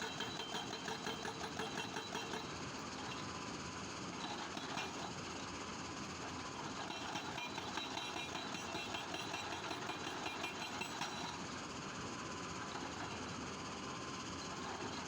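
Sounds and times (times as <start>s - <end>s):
hydraulic breaker hammering rock: 0.0s - 2.5s, 6.9s - 11.3s
machine noise: 6.6s - 11.4s.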